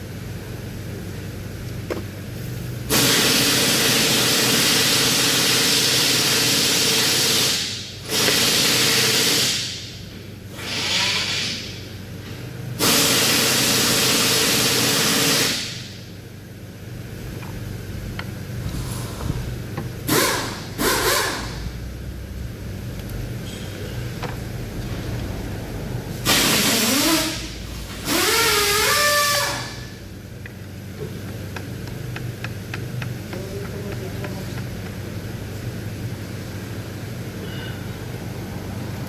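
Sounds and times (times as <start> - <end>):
steady low hum: 0.0 - 3.0, 15.6 - 39.0.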